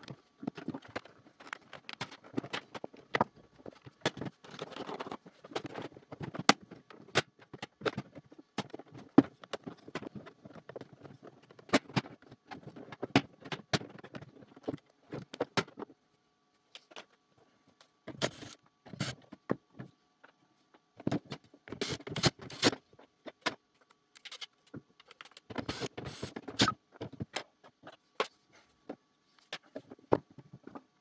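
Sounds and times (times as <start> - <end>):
plastic parts clicking and knocking: 0.0 - 15.9, 17.8 - 19.9, 20.9 - 31.0.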